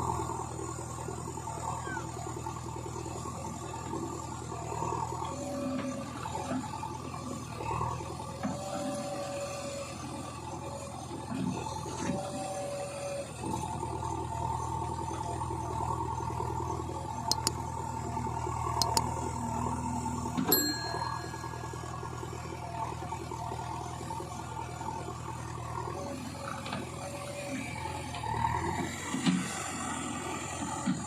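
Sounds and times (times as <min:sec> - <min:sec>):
diesel engine running: 0:00.0 - 0:31.0
sharp metal clicks: 0:17.3 - 0:17.6, 0:18.8 - 0:19.1
ringing metallic clang: 0:20.5 - 0:21.8.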